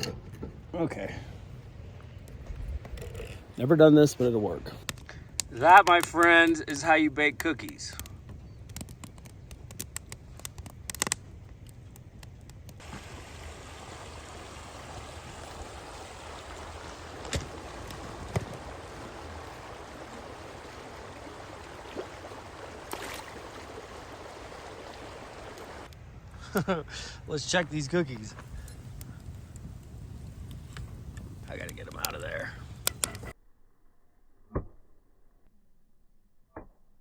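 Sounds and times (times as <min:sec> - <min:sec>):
sharp clicks: 0:07.6 - 0:12.8
creek flowing: 0:12.8 - 0:25.9.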